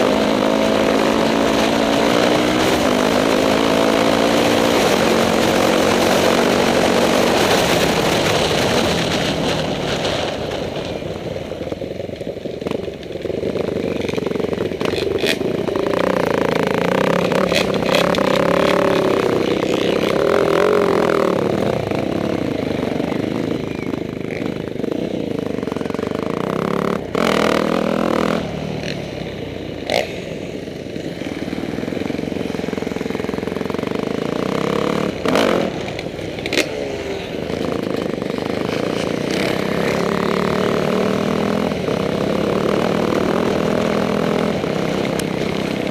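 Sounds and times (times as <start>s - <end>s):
motorcycle engines revving: 0.0s - 45.9s.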